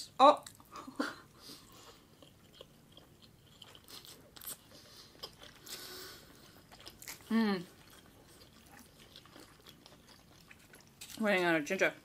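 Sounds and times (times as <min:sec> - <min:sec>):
wet chewing sounds: 0:00.4 - 0:11.2.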